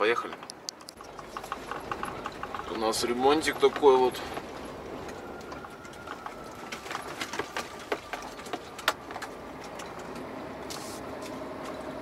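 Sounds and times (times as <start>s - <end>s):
sharp clicks and knocks: 0.2s - 4.5s
truck engine running: 0.9s - 12.0s.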